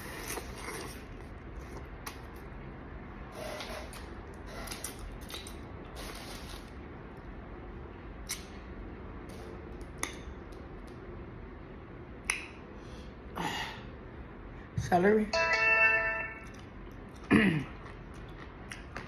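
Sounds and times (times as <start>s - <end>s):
wet squishing and slurping: 0.0s - 2.4s, 3.9s - 6.8s.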